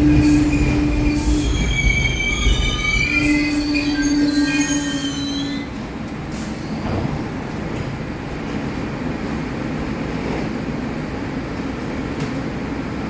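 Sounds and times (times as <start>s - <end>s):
wheels squealing: 0.0s - 5.7s
train rumbling: 0.0s - 13.0s.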